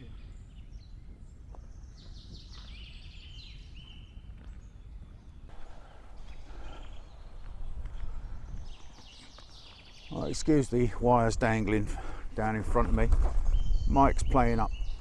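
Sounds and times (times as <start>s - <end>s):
wind rumble on microphone: 0.0s - 9.3s, 10.0s - 15.0s
small bird singing: 0.0s - 10.8s, 13.4s - 15.0s.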